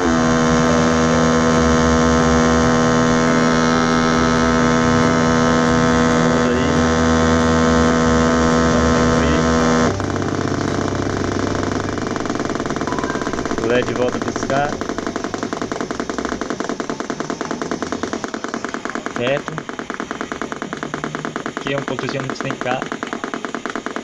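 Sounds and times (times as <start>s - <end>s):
electronic buzzing tone: 0.0s - 24.0s
rough pulsing buzz: 0.0s - 24.0s.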